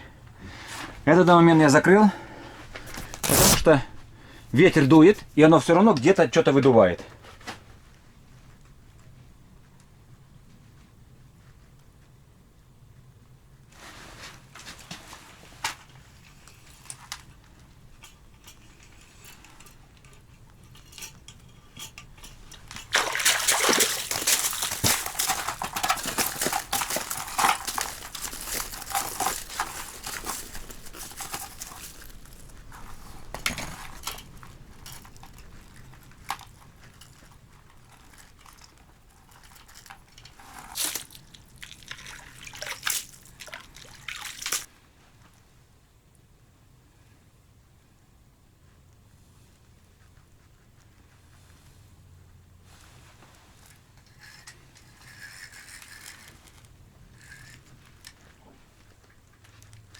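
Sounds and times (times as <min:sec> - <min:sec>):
ice crackles and clicks: 0:02.8 - 0:04.0, 0:20.7 - 0:44.7
water sloshing and splashing: 0:22.1 - 0:37.1, 0:40.6 - 0:44.7.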